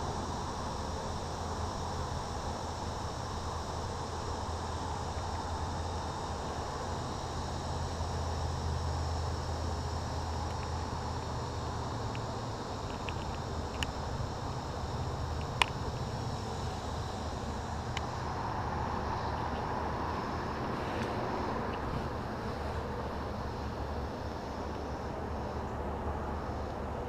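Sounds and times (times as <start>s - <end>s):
honeybee colony humming: 0.0s - 27.0s
hive equipment clicks: 12.0s - 17.2s.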